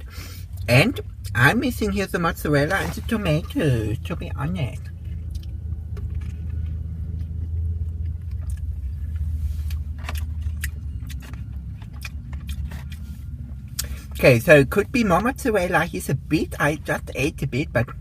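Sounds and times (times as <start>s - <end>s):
steady low rumble: 0.0s - 18.0s
person chewing: 4.8s - 14.2s.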